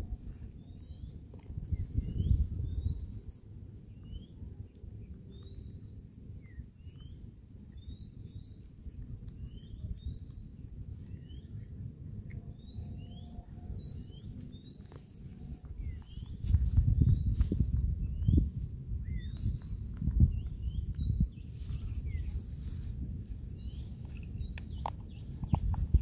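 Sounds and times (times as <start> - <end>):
low rumble: 0.0 - 26.0
bird chirping: 12.4 - 26.0
rustle: 12.8 - 26.0.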